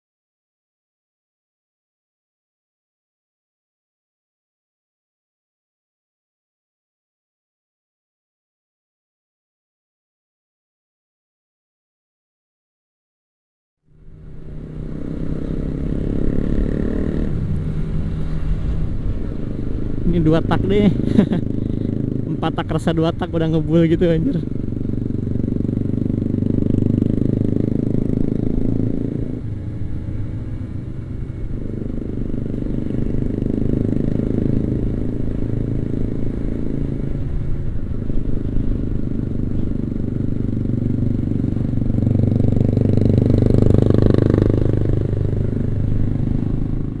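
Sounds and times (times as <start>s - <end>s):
two-stroke motorcycle engine running: 13.9s - 47.0s.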